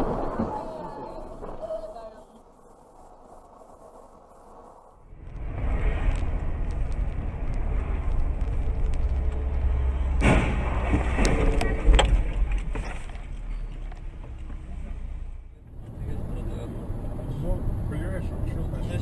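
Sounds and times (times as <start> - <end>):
sudden rush of noise: 0.0 - 12.7
car engine and road rumble: 0.0 - 19.0.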